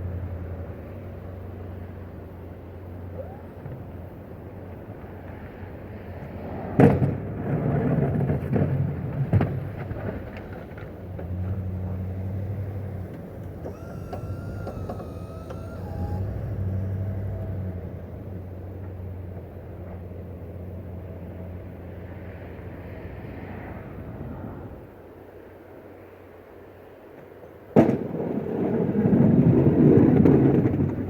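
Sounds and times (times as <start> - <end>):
engine running at low pitch: 0.0 - 26.8
thin wavering whine: 12.9 - 18.6.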